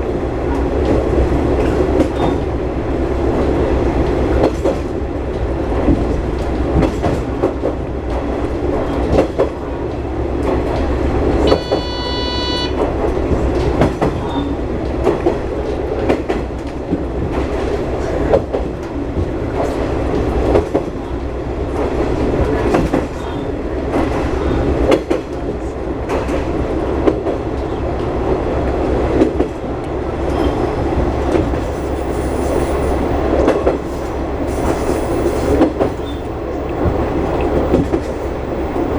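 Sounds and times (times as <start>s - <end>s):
train engine drone: 0.0s - 38.9s
train horn: 11.4s - 12.9s.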